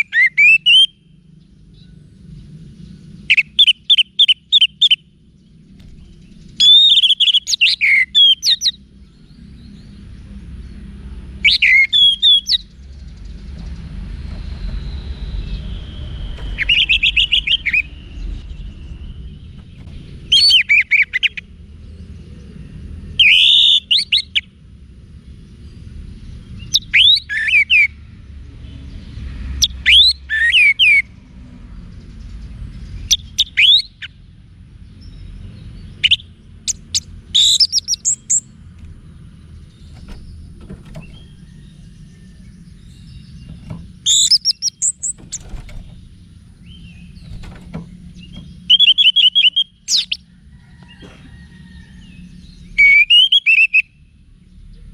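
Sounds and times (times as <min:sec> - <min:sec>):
thrush singing whistles and trills: 0:00.0 - 0:01.3, 0:03.1 - 0:05.2, 0:06.0 - 0:10.1, 0:11.3 - 0:21.9, 0:23.1 - 0:24.6, 0:25.6 - 0:28.1, 0:28.9 - 0:31.1, 0:32.7 - 0:34.3, 0:34.9 - 0:38.6, 0:39.5 - 0:50.3, 0:52.0 - 0:54.3
steady low hum: 0:00.9 - 0:27.3, 0:31.0 - 0:52.8.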